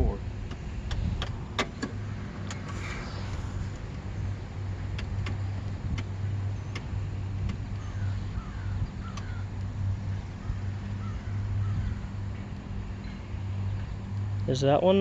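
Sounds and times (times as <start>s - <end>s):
pulsing low hum: 0.0s - 15.0s
faint bird calls: 7.8s - 12.4s.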